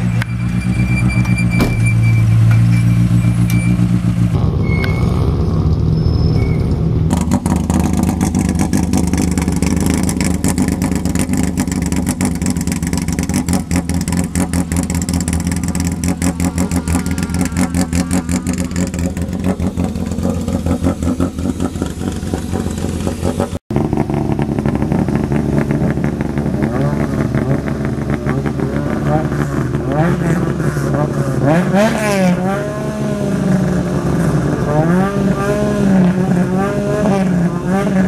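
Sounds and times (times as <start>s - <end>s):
rally car engine idling: 7.5s - 31.4s.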